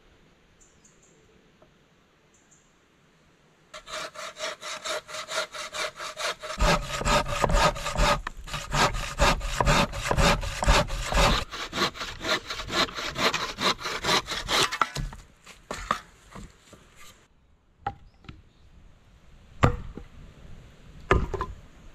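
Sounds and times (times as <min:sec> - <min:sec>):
hand saw cutting a log: 0:03.8 - 0:15.2.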